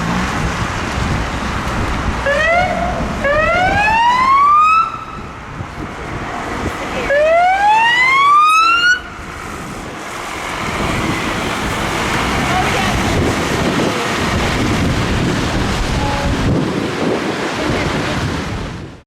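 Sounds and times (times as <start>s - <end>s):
traffic noise: 0.0s - 19.0s
fire engine siren wailing: 2.2s - 5.4s, 7.0s - 9.4s.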